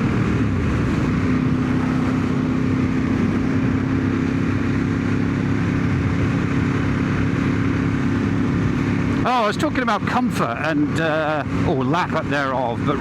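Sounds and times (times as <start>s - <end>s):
wind rushing over microphone: 0.0s - 9.3s
motorcycle engine running: 0.0s - 13.0s.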